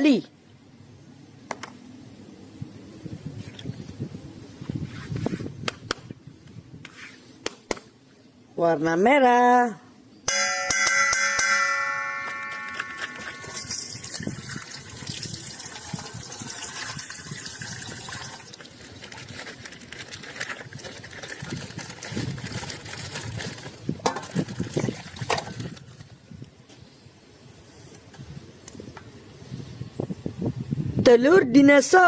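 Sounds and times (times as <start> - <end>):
chime ringing: 10.3 - 14.0
plastic packaging crinkling: 18.0 - 26.0.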